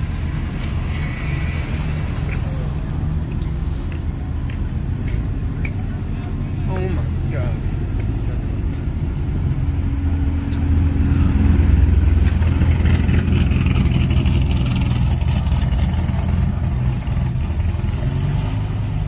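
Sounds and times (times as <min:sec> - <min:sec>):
car engine rumbling past: 0:07.1 - 0:19.0.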